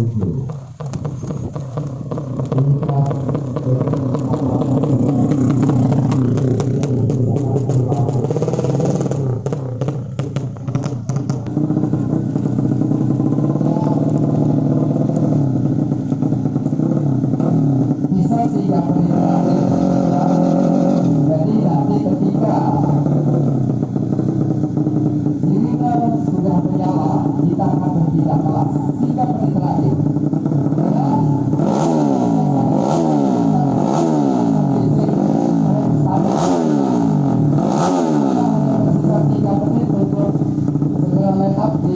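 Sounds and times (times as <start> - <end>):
motorcycle engines at high revs: 0.0 - 41.9.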